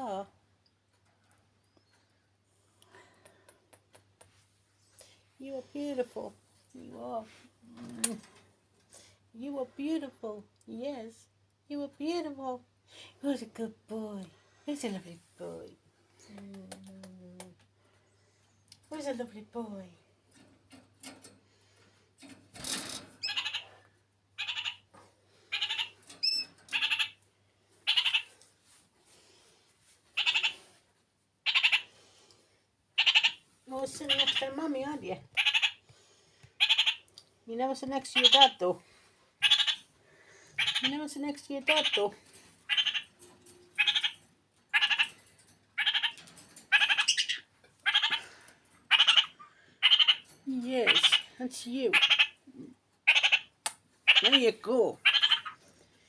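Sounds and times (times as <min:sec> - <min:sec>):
parakeet chattering calls: 0:23.2 - 0:23.7, 0:24.4 - 0:24.8, 0:25.5 - 0:27.2, 0:27.8 - 0:28.3, 0:30.2 - 0:30.6, 0:31.4 - 0:31.9, 0:33.0 - 0:33.4, 0:34.0 - 0:34.6, 0:35.4 - 0:35.8, 0:36.6 - 0:37.1, 0:38.2 - 0:38.6, 0:39.4 - 0:39.9, 0:40.6 - 0:40.9, 0:41.7 - 0:42.1, 0:42.7 - 0:43.2, 0:43.8 - 0:45.2, 0:45.8 - 0:48.3, 0:48.9 - 0:51.3, 0:51.9 - 0:52.4, 0:53.0 - 0:55.6.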